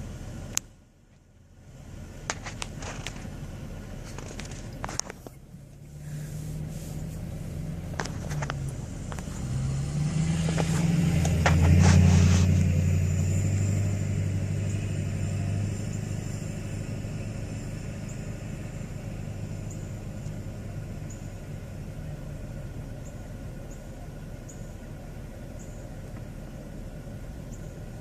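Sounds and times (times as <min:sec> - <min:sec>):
truck engine revving: 0:01.7 - 0:28.0.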